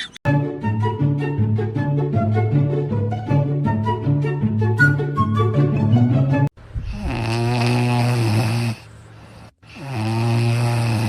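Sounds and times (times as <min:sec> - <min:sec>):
music: 0:00.3 - 0:06.5
animal snoring: 0:06.8 - 0:11.0.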